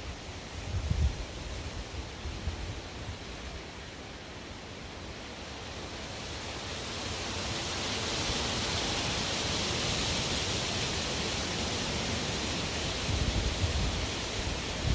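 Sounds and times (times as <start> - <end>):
strong wind blowing: 0.0 - 2.8, 12.8 - 14.9.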